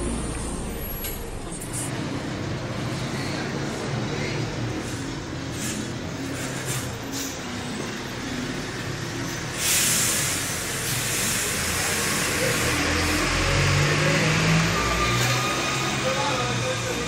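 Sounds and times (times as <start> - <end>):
car engine idling: 0.0 - 3.0
strong hiss: 9.6 - 13.2.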